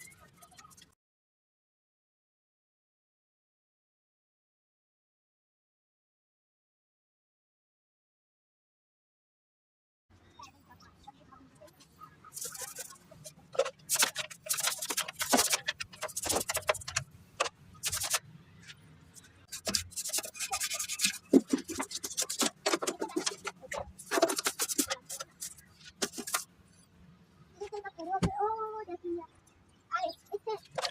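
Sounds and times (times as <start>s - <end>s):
stiff brush scrubbing: 12.4s - 18.2s, 19.5s - 26.5s.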